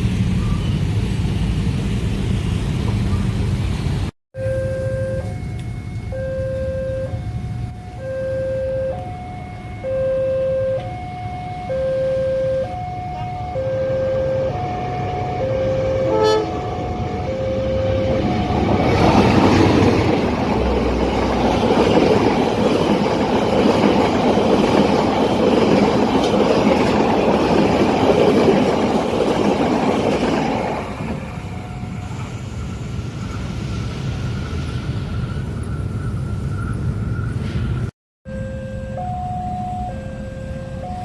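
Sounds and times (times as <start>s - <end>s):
alternating two-note crossing tones: 4.4s - 19.0s, 38.3s - 41.0s
train wheels rushing on rails: 14.2s - 37.9s.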